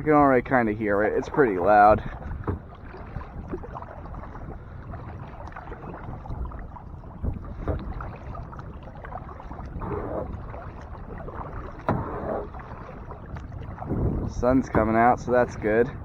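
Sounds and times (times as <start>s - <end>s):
paddle strokes splashing: 0.0s - 16.0s
paddle knocking against boat: 0.4s - 16.0s.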